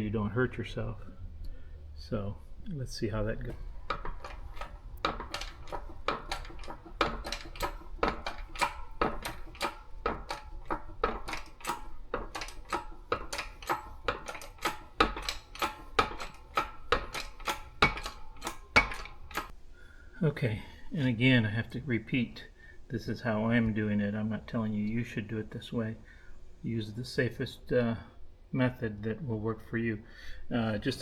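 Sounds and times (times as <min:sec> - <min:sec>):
metal tools clicking and tapping: 0:03.4 - 0:19.6.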